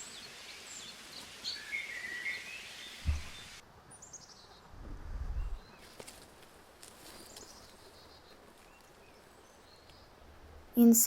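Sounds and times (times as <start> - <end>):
low thump: 3.0 - 3.4.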